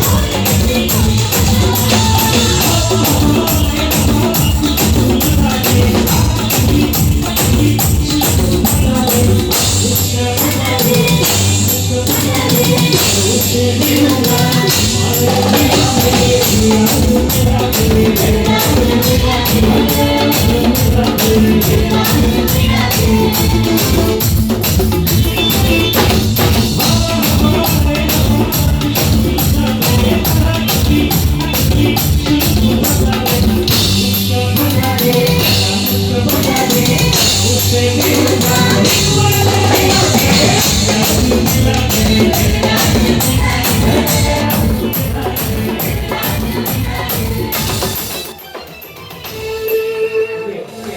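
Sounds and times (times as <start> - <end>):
person singing: 0.0 - 48.4, 49.3 - 50.9
drums and tambourine beat: 0.0 - 50.2
live band music: 0.0 - 50.9.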